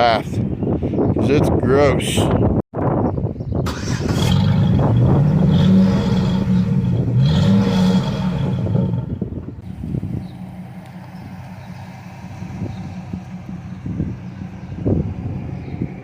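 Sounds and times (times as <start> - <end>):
road and wind noise: 0.0 - 16.0
pickup engine accelerating: 3.7 - 16.0.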